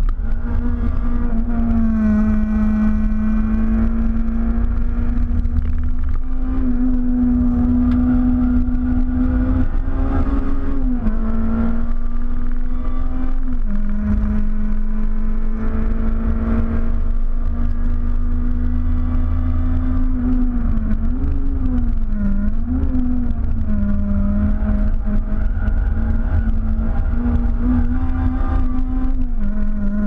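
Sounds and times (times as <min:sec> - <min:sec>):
low road and tyre rumble: 0:00.0 - 0:30.0
race car engine from inside cabin: 0:00.0 - 0:30.0.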